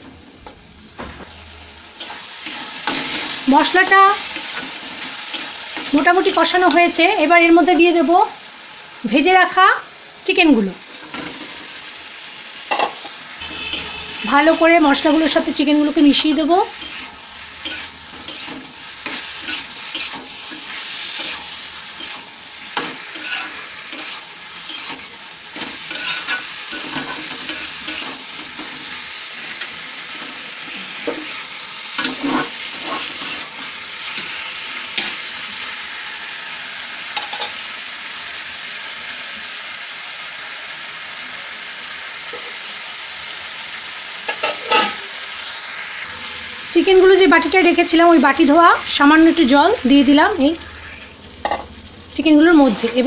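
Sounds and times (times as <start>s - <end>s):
chicken sizzling in a pan: 0.0s - 53.0s
spatula scraping and clacking on pan: 2.0s - 3.4s, 4.2s - 7.0s, 12.7s - 35.3s, 44.2s - 45.1s.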